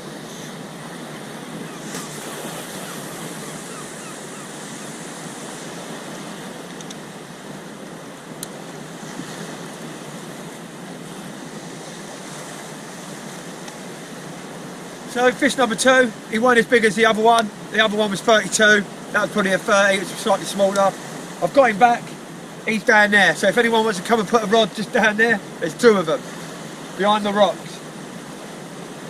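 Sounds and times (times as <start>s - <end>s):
wind on microphone: 0.0s - 8.0s
waves washing against rocks: 0.0s - 16.1s.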